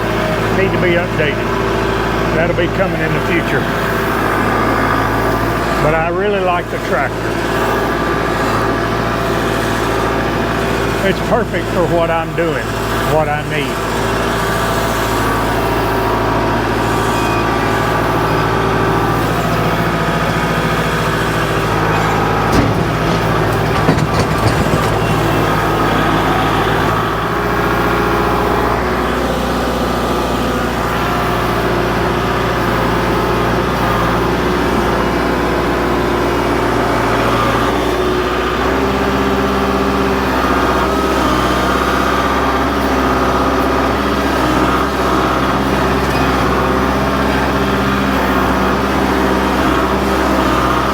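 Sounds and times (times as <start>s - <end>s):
tractor diesel engine working: 0.0s - 50.9s
knocks: 21.7s - 27.0s.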